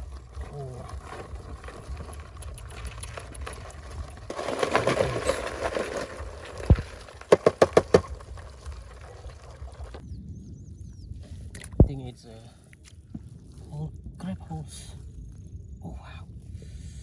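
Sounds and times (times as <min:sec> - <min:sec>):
scraping and rustling: 0:00.0 - 0:10.0
sharp knocks: 0:06.8 - 0:08.1.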